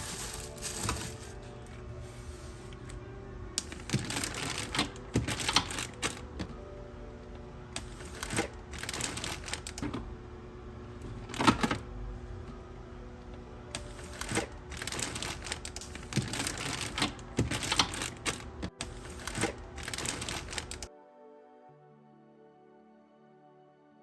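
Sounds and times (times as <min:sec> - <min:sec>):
plastic bags rustling: 0:00.0 - 0:02.8, 0:03.7 - 0:06.3, 0:08.0 - 0:09.8, 0:13.9 - 0:20.9
soft background music: 0:00.0 - 0:24.0.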